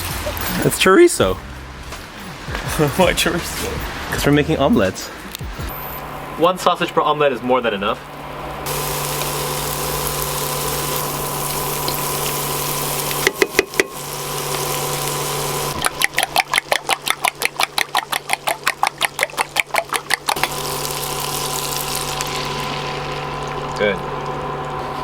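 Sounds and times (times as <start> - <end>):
steady humming drone: 1.3 - 25.0
fork whisking eggs in a bowl: 15.8 - 20.5.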